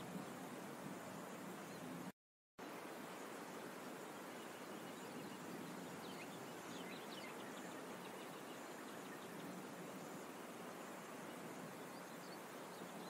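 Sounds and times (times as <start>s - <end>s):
outdoor background hiss: 0.0s - 13.0s
faint bird chirps: 2.7s - 13.0s.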